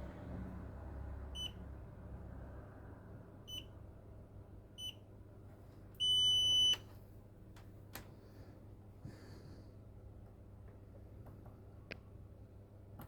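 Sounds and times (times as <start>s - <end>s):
multimeter beeping: 6.0s - 6.8s.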